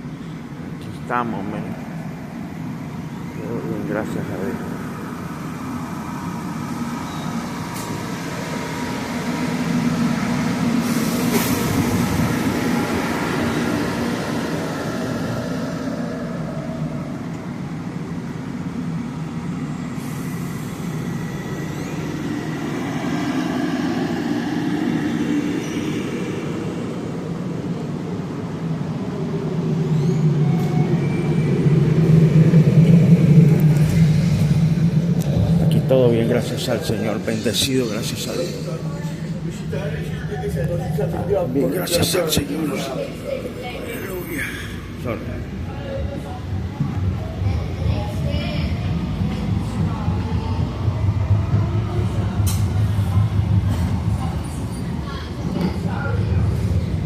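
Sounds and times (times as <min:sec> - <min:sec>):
low vehicle rumble: 0:00.0 - 0:37.9.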